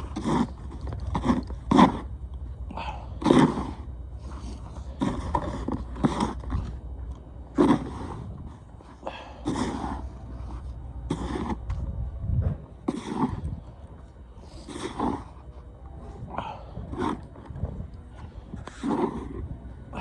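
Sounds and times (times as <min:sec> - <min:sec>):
snow shovel scraping snow: 0:00.0 - 0:02.1, 0:03.2 - 0:06.6, 0:07.6 - 0:08.3, 0:09.2 - 0:11.6, 0:12.9 - 0:13.4, 0:14.4 - 0:15.4, 0:16.9 - 0:17.2, 0:18.7 - 0:19.4
low rumble: 0:00.0 - 0:20.0.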